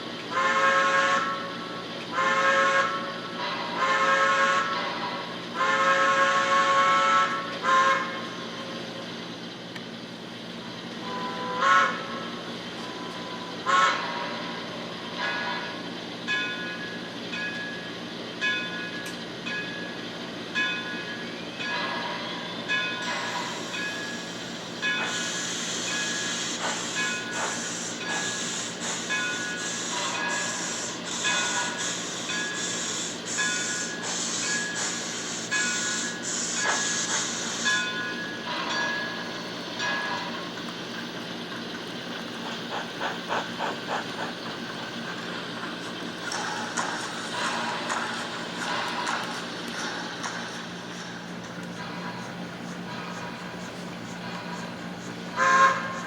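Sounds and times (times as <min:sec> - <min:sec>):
model steam locomotive whistle: 0:00.3 - 0:08.4, 0:11.0 - 0:14.6, 0:23.1 - 0:39.2, 0:55.3 - 0:56.0
steady hiss: 0:23.0 - 0:38.4.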